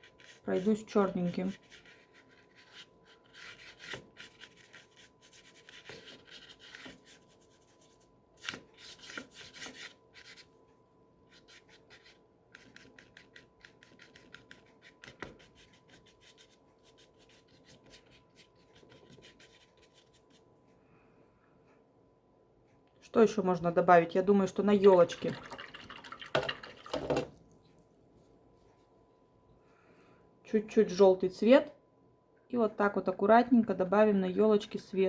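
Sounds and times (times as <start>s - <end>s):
bristle brush scratching on paper: 0.0s - 10.5s, 11.3s - 20.5s.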